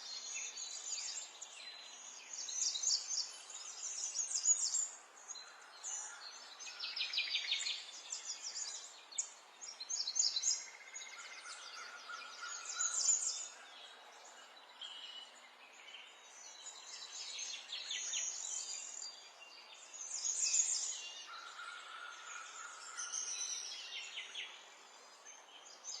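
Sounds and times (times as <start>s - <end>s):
songbirds singing and chirping: 0.0s - 26.0s.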